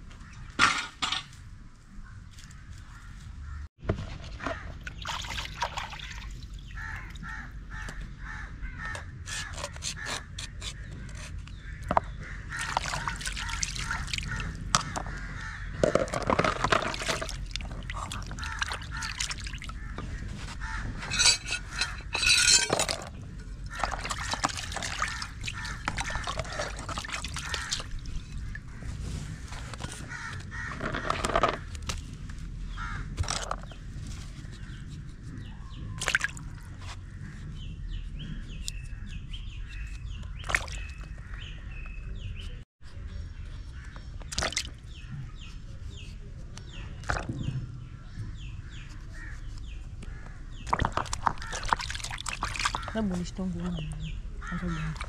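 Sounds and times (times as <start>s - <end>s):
birds cawing: 5.8s - 16.4s, 17.2s - 22.6s, 23.6s - 31.8s, 32.7s - 33.8s, 47.6s - 49.4s, 50.0s - 53.1s, 54.0s - 55.0s.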